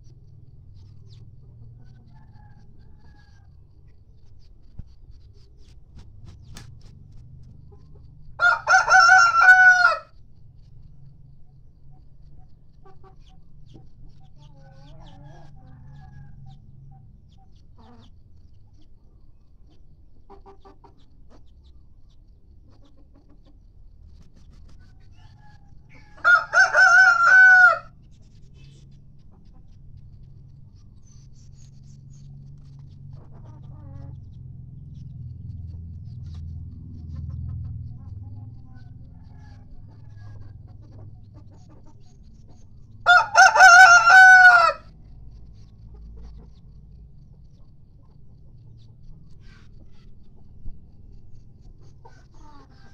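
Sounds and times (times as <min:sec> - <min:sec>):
faint low hum: 0:00.0 - 0:52.9
rooster crowing: 0:08.4 - 0:10.1, 0:25.2 - 0:28.0, 0:38.9 - 0:40.4, 0:43.0 - 0:44.9.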